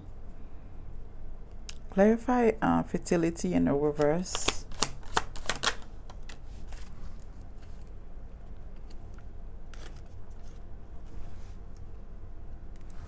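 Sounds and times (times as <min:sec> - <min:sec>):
low steady hum: 0:00.0 - 0:13.0
cards being shuffled: 0:04.1 - 0:11.4.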